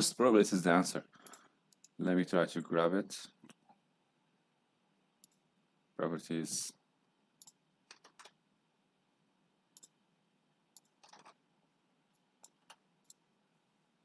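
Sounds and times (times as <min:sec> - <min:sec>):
faint computer mouse clicks: 0:09.7 - 0:10.0.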